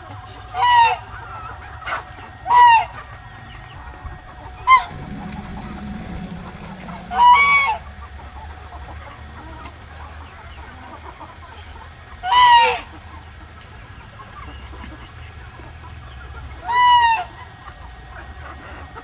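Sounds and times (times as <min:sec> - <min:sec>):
faint low hum: 0:02.8 - 0:10.1.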